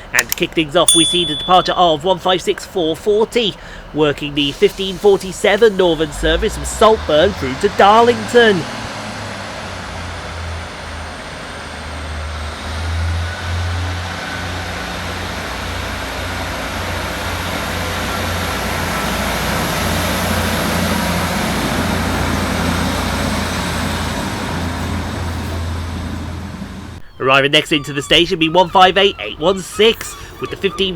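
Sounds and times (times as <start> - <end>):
diesel train engines running: 0.0 - 30.9.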